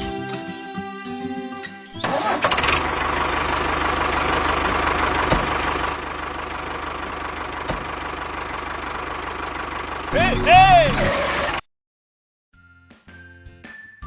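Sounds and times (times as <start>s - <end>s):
tractor engine idling: 2.0s - 11.6s.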